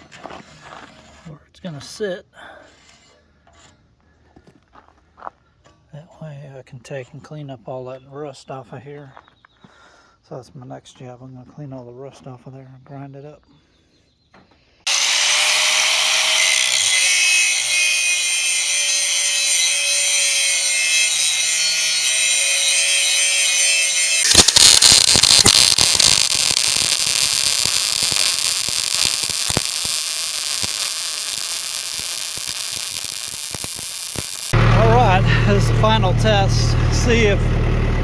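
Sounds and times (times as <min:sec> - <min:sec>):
power grinder grinding metal: 0:14.9 - 0:38.0.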